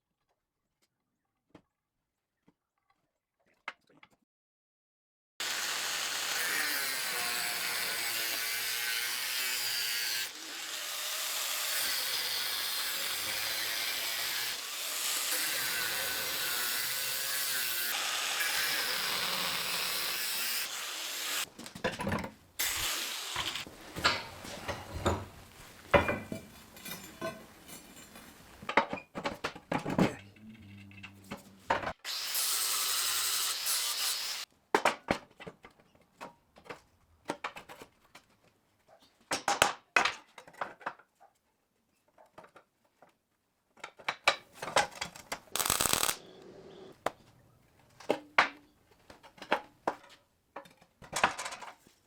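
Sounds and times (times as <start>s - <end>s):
power tool working steel: 5.4s - 21.5s, 22.6s - 23.7s, 32.1s - 34.4s, 45.6s - 47.0s.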